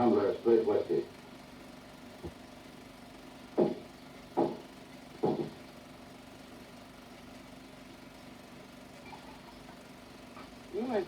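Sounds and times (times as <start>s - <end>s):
film soundtrack hum: 0.0s - 11.0s
dull knocks: 3.6s - 3.8s, 4.4s - 4.6s, 5.2s - 5.6s.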